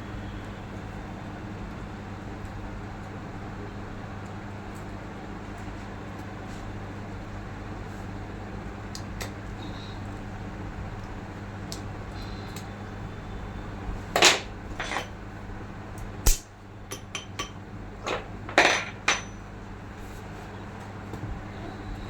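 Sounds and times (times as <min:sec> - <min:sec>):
metal tools knocking and clinking: 0:14.2 - 0:15.1, 0:16.9 - 0:19.4.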